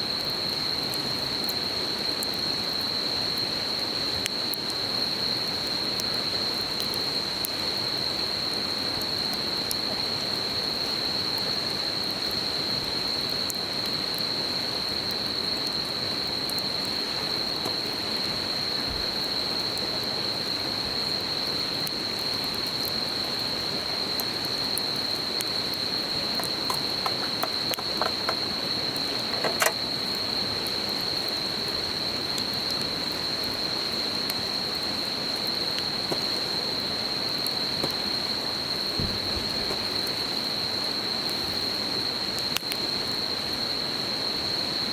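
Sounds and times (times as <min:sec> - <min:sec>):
campfire crackling: 0:00.1 - 0:43.3
crickets calling: 0:00.1 - 0:44.9
small river rushing: 0:24.2 - 0:31.0.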